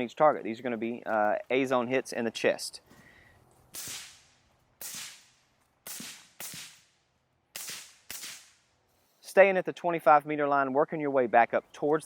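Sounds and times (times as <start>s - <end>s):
rifle shots with echo: 3.8s - 7.0s, 7.6s - 8.6s.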